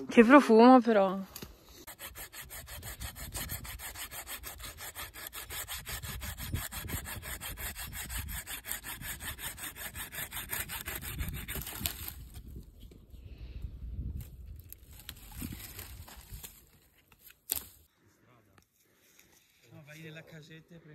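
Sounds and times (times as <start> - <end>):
hand saw cutting wood: 1.8 - 12.4.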